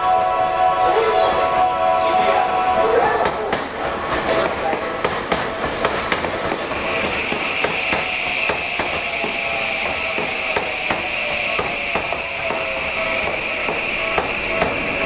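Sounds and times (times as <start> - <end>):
train wheels clicking over rail joints: 3.2 - 15.0.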